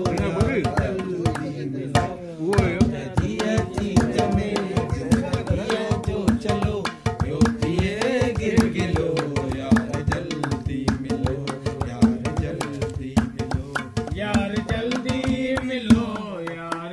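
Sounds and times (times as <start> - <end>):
person singing: 0.0 - 16.9.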